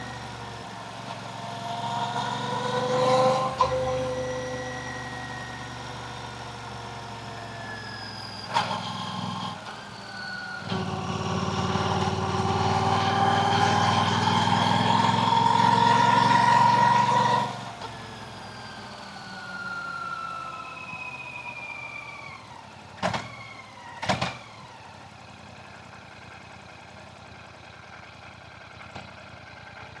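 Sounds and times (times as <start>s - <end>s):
motorcycle engine and exhaust: 0.0s - 23.3s, 24.3s - 30.0s.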